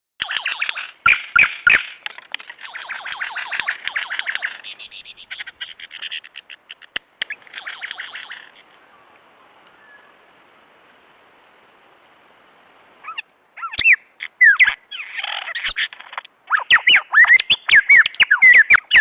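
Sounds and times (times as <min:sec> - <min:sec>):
birds chattering and squawking: 0:00.2 - 0:08.9, 0:13.0 - 0:19.0.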